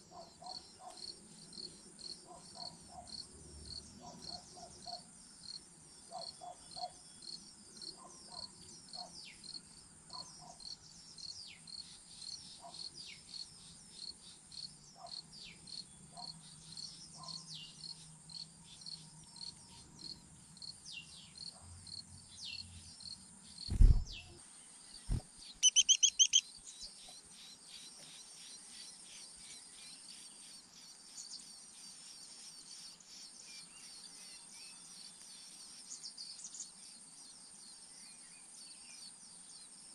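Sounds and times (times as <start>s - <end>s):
insects chirping: 0.0s - 39.9s
loud low thump: 23.7s - 24.3s
bird calls: 25.0s - 27.2s.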